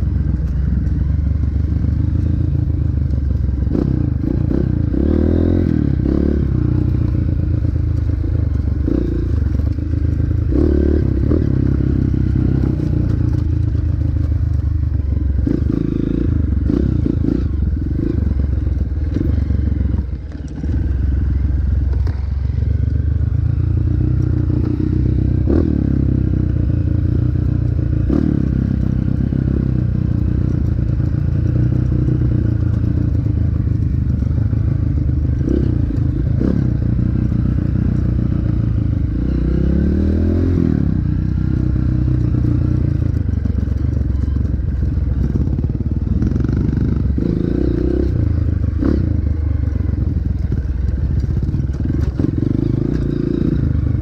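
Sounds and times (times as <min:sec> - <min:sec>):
dirt bike engine revving: 0:03.7 - 0:07.3, 0:08.8 - 0:13.4, 0:34.4 - 0:42.9, 0:43.6 - 0:54.0.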